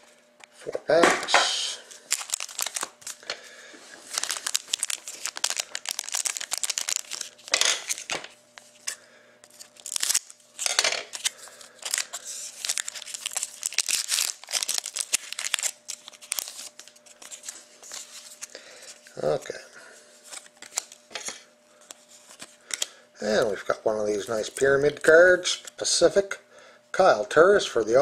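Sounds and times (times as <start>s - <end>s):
card packs torn open: 1.9s - 3.3s, 4.0s - 18.9s, 20.3s - 21.0s
wrappers crinkling: 1.9s - 3.3s, 4.0s - 19.0s.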